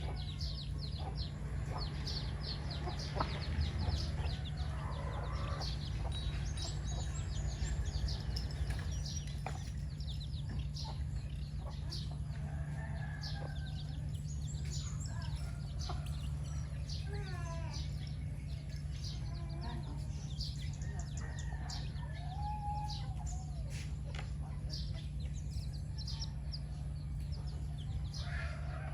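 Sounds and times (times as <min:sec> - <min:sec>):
chickens clucking: 0:00.0 - 0:16.7
chicks peeping: 0:00.0 - 0:17.0.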